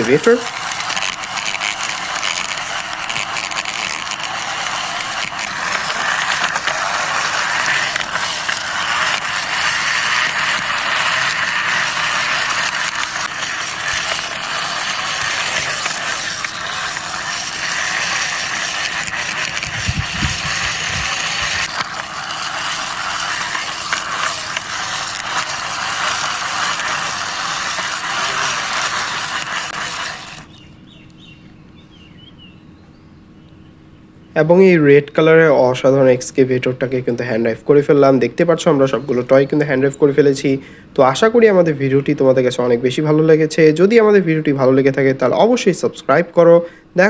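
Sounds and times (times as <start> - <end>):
toy excavator rattling: 0.0 - 30.6.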